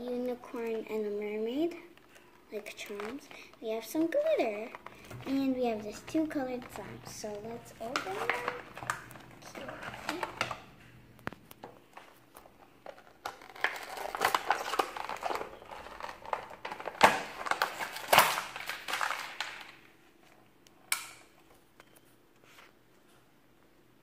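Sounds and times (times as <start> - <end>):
plastic packaging crinkling: 1.6 - 20.4
sharp plastic clicks and snaps: 20.6 - 21.3.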